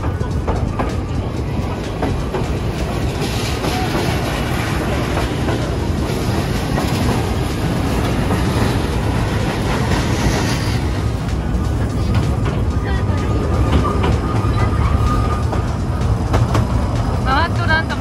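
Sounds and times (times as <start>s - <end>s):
train wheels clattering on rails: 0.0s - 18.0s
hiss: 0.1s - 12.3s.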